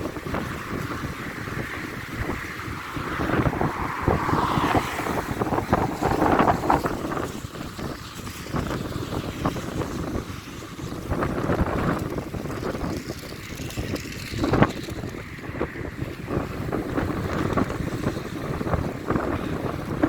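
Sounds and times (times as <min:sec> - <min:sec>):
gusty storm wind: 0:00.0 - 0:20.0
wind buffeting microphone: 0:00.0 - 0:20.0.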